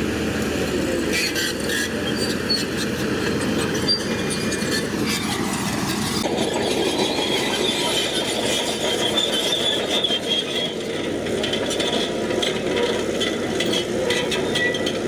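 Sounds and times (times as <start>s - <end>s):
bulldozer diesel engine under load: 0.0s - 15.0s
steel tracks squeaking and clanking: 1.1s - 15.0s.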